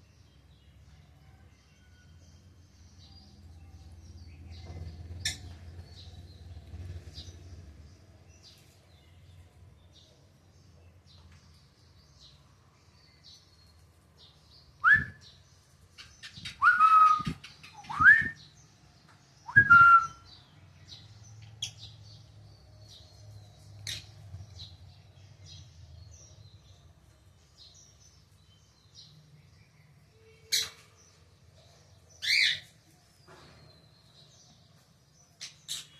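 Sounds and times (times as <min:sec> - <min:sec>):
quiet bird chirps: 0:00.0 - 0:35.9
lovebirds calling: 0:04.1 - 0:07.5, 0:14.8 - 0:26.8, 0:27.4 - 0:35.9.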